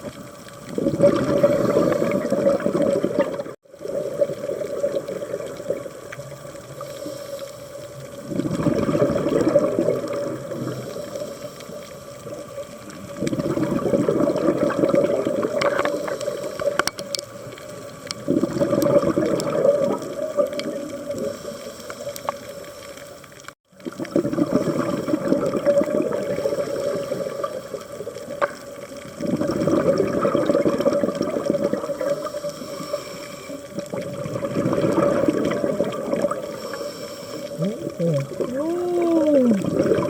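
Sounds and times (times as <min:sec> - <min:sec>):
exhaled bubbles underwater: 0:00.0 - 0:40.0
diver breathing through regulator: 0:06.8 - 0:07.8, 0:10.4 - 0:12.1, 0:15.8 - 0:16.8, 0:26.2 - 0:27.6, 0:31.9 - 0:33.7, 0:36.3 - 0:38.0.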